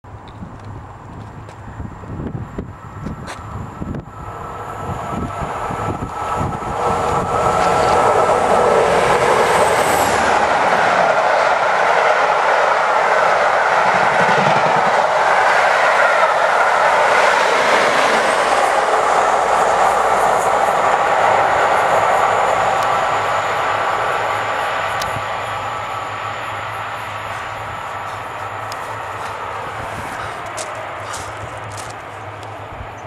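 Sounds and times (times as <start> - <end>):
high whine: 0.1 - 11.7, 18.1 - 33.0
train wheels clattering on rail: 5.2 - 21.9, 27.0 - 33.0.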